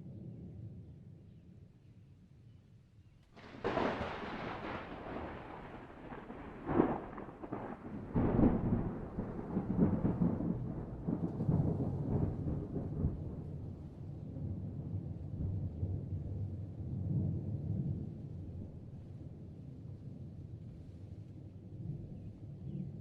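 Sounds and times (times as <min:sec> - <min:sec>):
thunder clap and rumble: 0:03.4 - 0:19.0.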